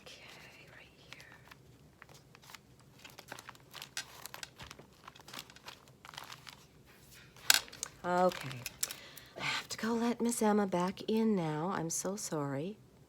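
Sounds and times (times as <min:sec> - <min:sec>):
paper rustling and crinkling: 0:00.2 - 0:09.1.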